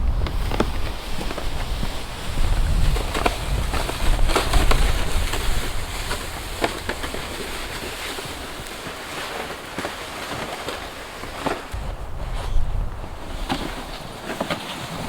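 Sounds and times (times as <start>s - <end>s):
wind buffeting microphone: 0.0s - 8.8s, 11.7s - 15.0s.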